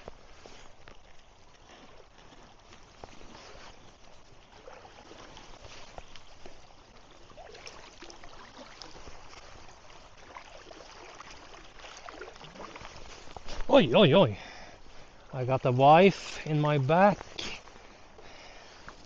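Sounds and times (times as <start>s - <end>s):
small clicks and splashes: 0.0s - 13.7s
river water trickling: 0.0s - 19.0s.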